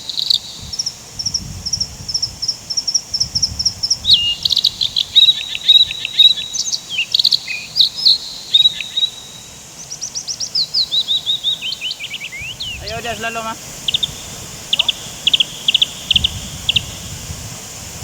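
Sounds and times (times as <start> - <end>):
fast even insect chirping: 0.0 - 18.0
birds chirping and whistling: 3.3 - 18.0
faint steady high tone: 5.2 - 10.2, 12.8 - 17.4.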